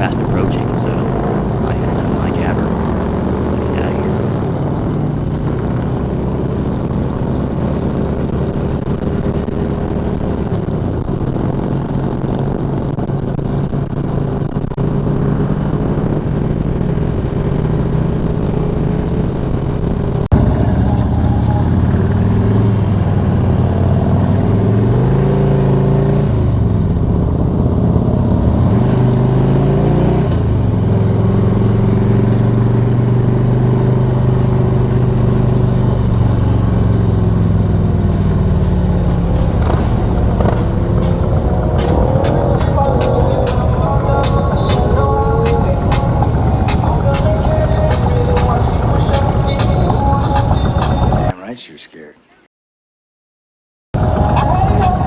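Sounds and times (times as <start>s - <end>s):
motorcycle engines revving: 0.0s - 5.0s, 37.8s - 43.5s.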